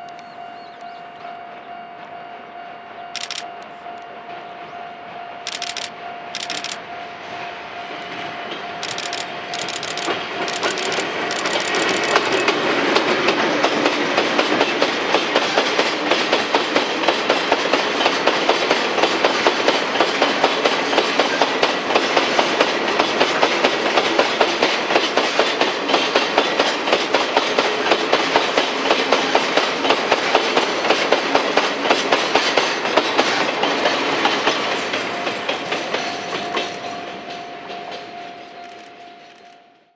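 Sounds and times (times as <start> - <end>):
train wheels clattering over rail joints: 8.8 - 38.1.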